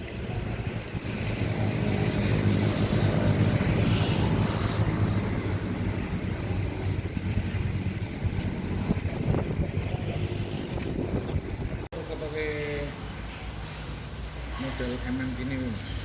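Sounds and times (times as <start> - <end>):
motor vehicle engine hum: 0.0 - 14.0.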